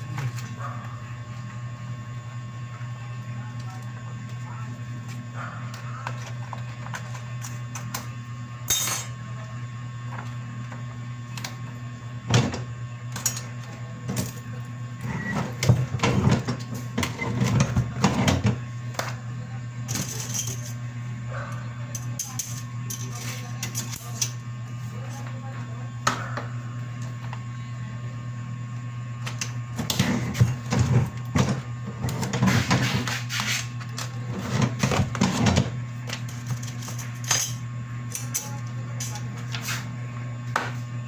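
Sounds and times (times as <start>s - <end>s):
low machine hum: 0.0s - 41.0s.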